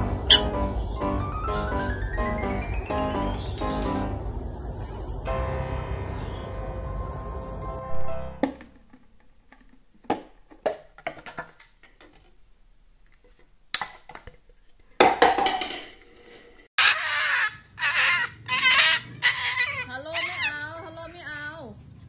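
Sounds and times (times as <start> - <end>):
parrot squawking and chattering: 0.3 - 0.7, 16.8 - 20.9
plastic lid clattering: 8.4 - 12.3, 13.0 - 16.5.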